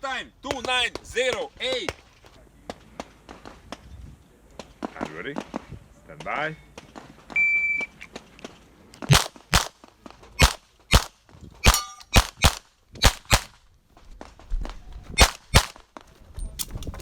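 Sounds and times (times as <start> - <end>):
pistol shots: 9.1 - 9.8, 10.4 - 13.6, 15.2 - 15.8.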